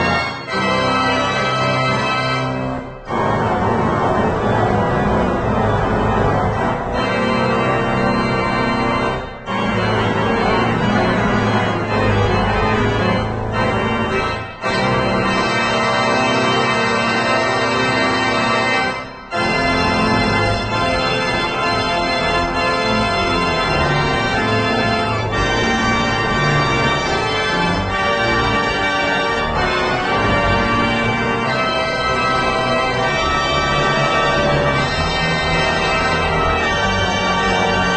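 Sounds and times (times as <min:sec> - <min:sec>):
organ playing sustained chords: 0:00.0 - 0:37.9.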